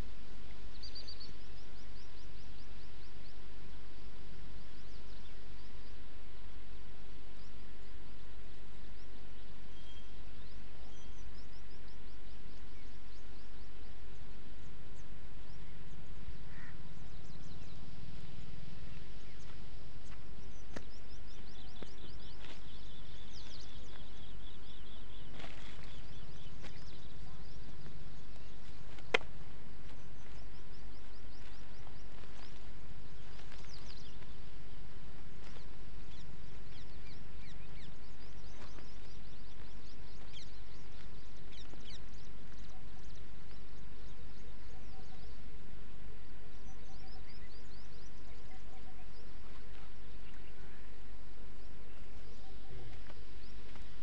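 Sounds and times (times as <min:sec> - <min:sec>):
small birds chirping: 0:00.0 - 0:54.0
steady low rumble: 0:12.5 - 0:54.0.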